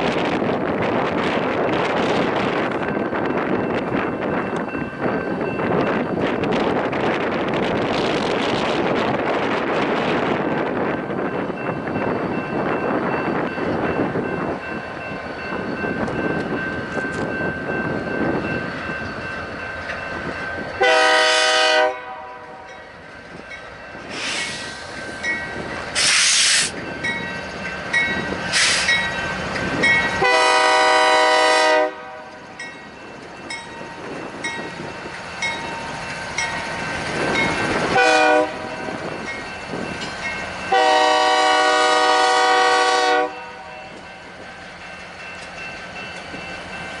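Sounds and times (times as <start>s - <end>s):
wind on microphone: 0.0s - 20.9s, 23.2s - 40.8s
locomotive air horn blasts: 20.8s - 22.6s, 30.2s - 32.3s, 37.9s - 38.8s, 40.7s - 43.7s
bell ringing steadily: 26.8s - 30.3s, 32.6s - 37.9s.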